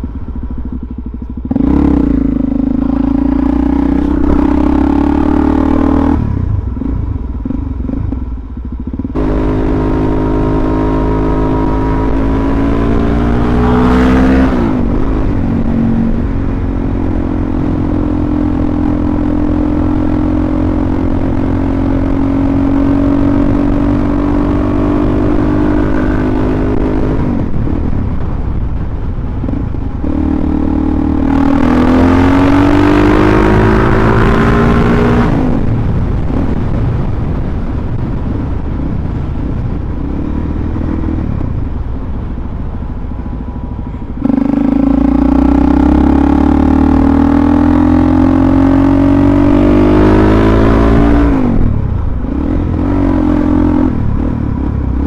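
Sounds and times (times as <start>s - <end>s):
motorcycle engine through gears: 0.0s - 37.1s.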